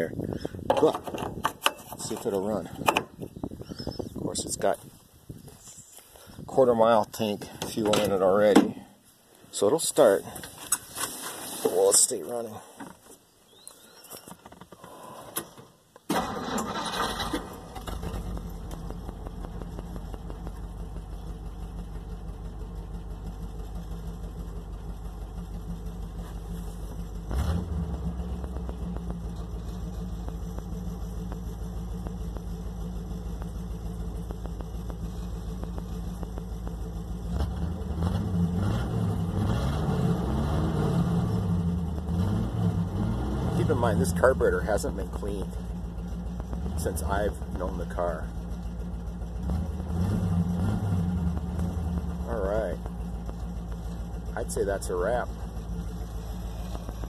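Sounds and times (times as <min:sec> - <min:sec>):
car engine starting and idling: 0:14.7 - 0:57.0.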